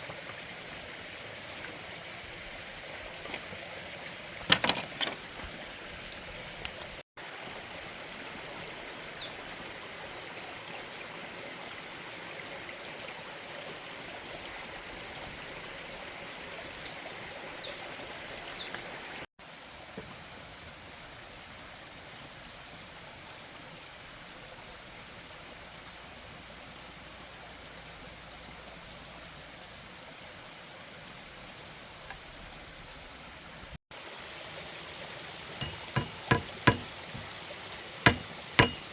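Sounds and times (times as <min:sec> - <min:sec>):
rush of running water: 0:00.0 - 0:19.3, 0:33.6 - 0:38.9
light knocks: 0:35.6 - 0:38.9.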